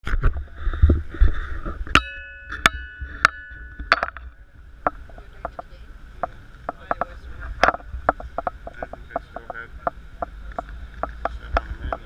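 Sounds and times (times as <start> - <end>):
sharp ringing clinks: 2.0 - 4.3.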